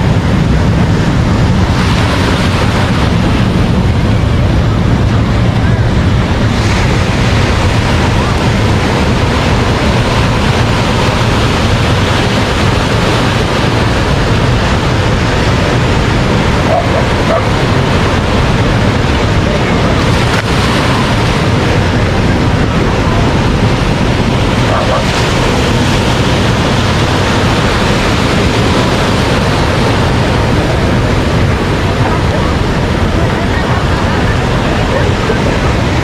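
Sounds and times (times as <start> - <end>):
ocean surf breaking: 0.0 - 36.0
dog barking faintly: 16.6 - 17.6, 24.6 - 25.1.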